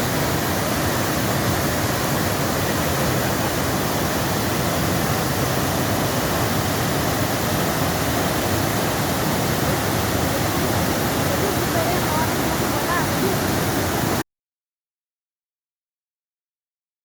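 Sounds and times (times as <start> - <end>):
waterfall rushing: 0.0 - 14.2.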